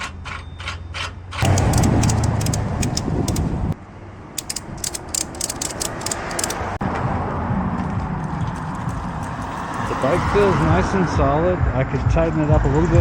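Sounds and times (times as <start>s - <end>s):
ratchet strap clicking: 0.0s - 3.5s, 4.4s - 6.8s.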